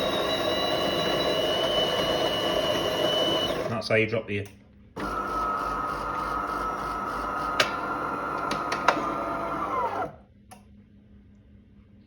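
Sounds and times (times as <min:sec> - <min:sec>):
coffee grinder running: 0:00.0 - 0:03.8, 0:05.0 - 0:10.1.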